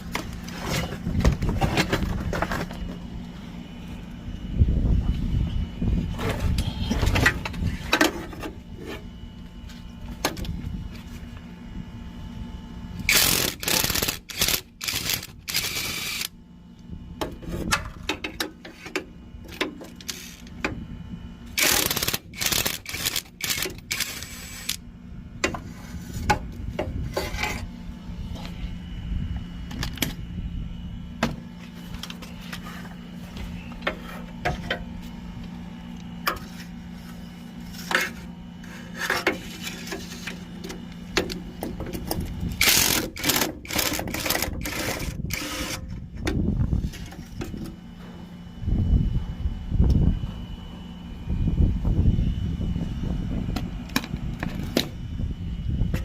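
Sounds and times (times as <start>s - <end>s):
steady low hum: 0.0s - 56.0s
power tool bursts: 13.1s - 16.3s, 21.6s - 24.8s.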